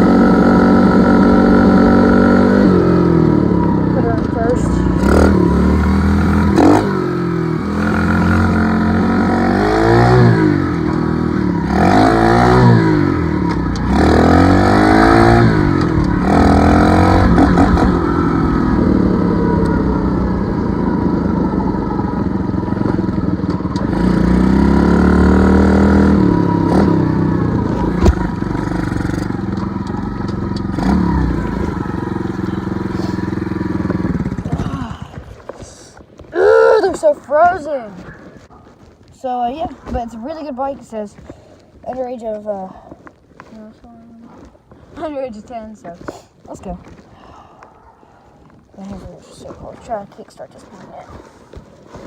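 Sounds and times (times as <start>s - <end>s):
dirt bike engine revving: 0.0s - 35.2s.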